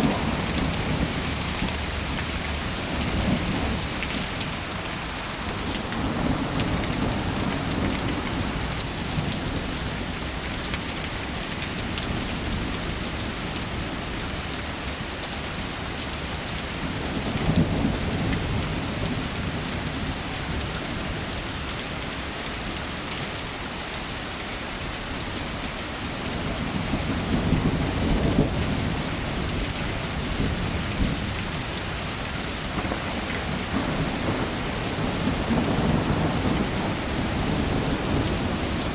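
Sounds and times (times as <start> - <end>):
low thunder rumbling: 0.0 - 9.9, 26.4 - 38.9
heavy rain: 0.0 - 38.9.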